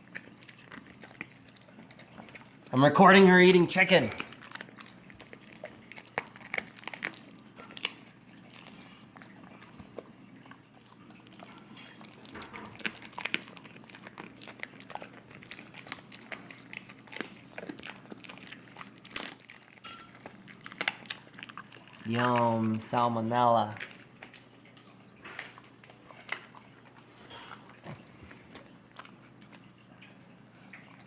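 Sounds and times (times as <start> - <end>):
dog chewing and crunching: 0.0 - 31.0.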